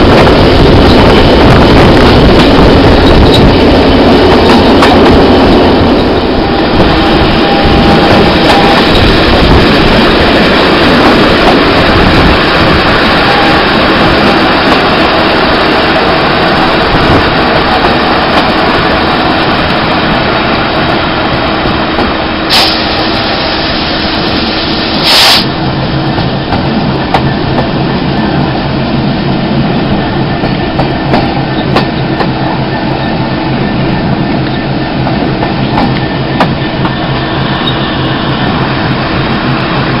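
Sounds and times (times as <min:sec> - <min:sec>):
wheels on rail: 0:00.0 - 0:23.1, 0:29.6 - 0:40.0
loud rushes of noise: 0:00.0 - 0:25.6
wind rushing: 0:00.0 - 0:31.5
low diesel locomotive engine: 0:00.0 - 0:40.0.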